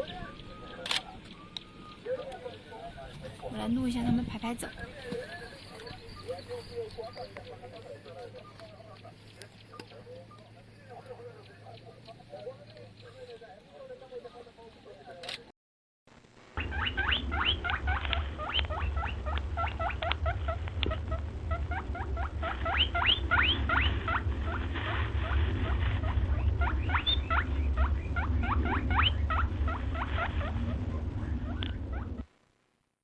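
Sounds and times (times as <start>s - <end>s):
low hum: 16.1s - 32.6s
small animal squeaking: 16.6s - 24.6s, 25.2s - 32.2s.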